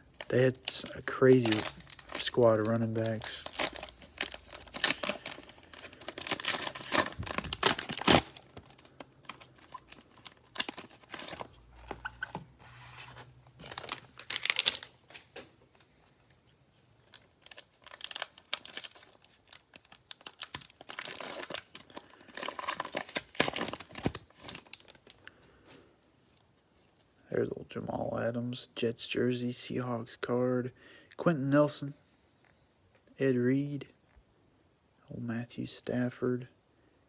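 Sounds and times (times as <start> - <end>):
cellophane wrappers crinkling and tearing: 0.0 - 12.3, 13.6 - 15.4, 17.0 - 25.3.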